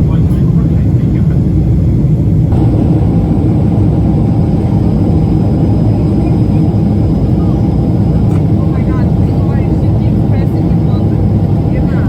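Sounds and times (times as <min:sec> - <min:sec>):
jet engines rumbling in cabin: 0:00.0 - 0:12.0.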